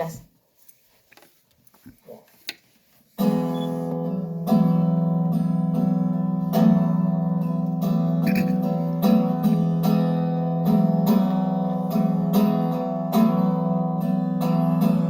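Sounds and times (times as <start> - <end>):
guitar chords strummed: 3.2 - 15.0.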